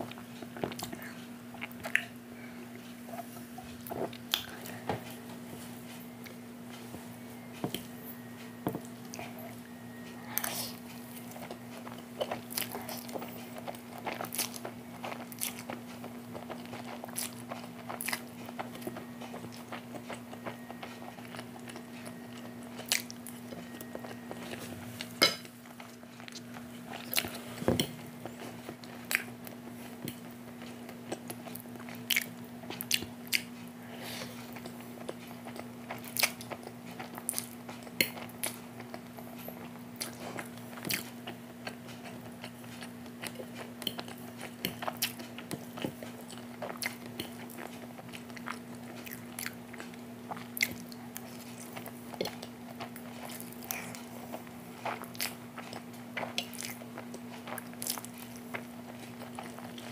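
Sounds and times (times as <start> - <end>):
chewing and biting food: 10.4 - 59.9.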